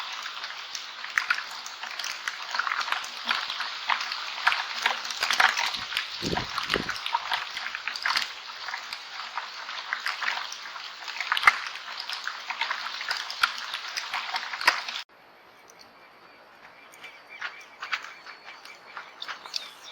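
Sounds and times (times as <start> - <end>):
hail pelting a camera and ground: 0.0 - 15.0.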